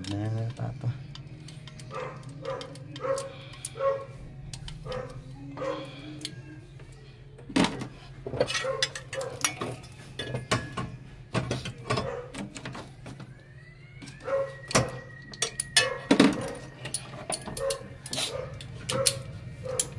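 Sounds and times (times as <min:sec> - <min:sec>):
dog barking: 0:01.9 - 0:04.1, 0:04.8 - 0:06.0, 0:08.6 - 0:09.4, 0:12.0 - 0:12.4, 0:15.8 - 0:16.7, 0:17.6 - 0:19.9.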